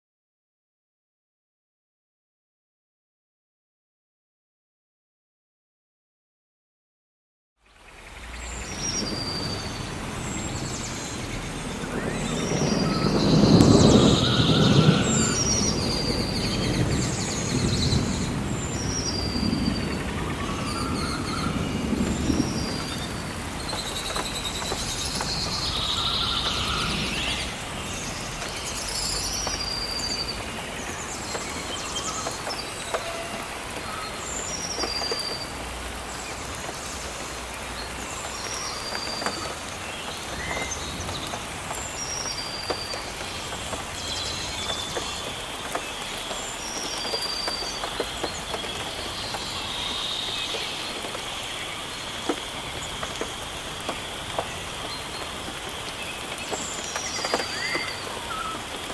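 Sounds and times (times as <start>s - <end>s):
rain falling on foliage: 7.6s - 58.9s
water drip clicks: 20.4s - 58.9s.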